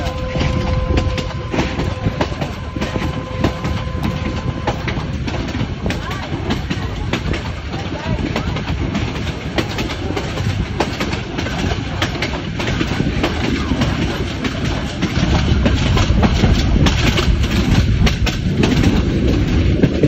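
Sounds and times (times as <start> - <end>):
rattling clicks of wheels: 0.0 - 20.0
train wheels rumbling on track: 0.0 - 20.0.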